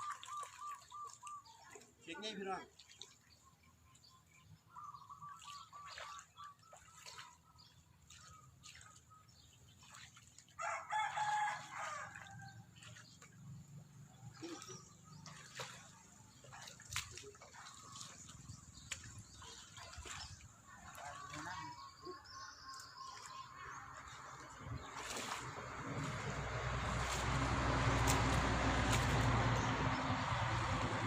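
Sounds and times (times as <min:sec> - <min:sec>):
rooster crowing: 0:10.6 - 0:12.6.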